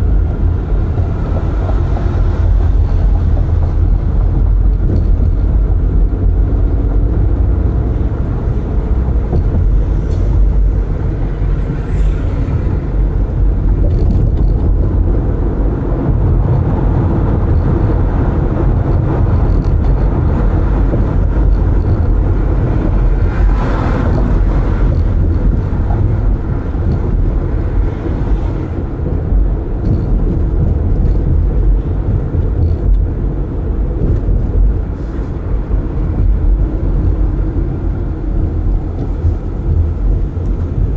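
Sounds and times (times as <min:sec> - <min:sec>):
tyre and wind rumble in car: 0:00.0 - 0:40.9.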